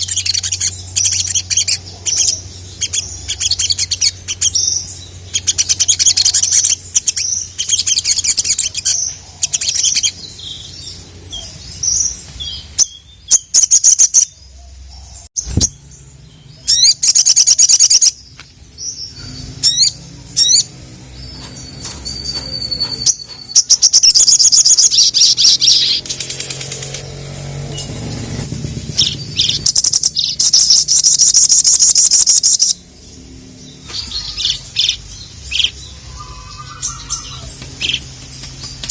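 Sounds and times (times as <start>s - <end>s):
bird singing rapid trills: 0.0s - 38.9s.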